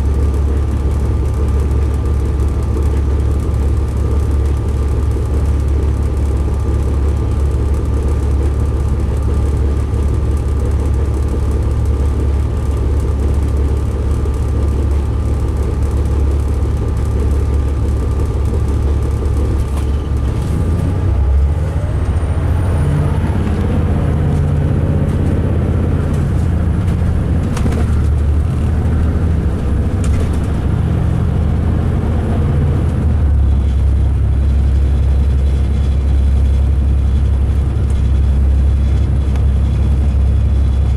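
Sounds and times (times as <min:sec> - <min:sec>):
diesel engine rumble: 0:00.0 - 0:40.9.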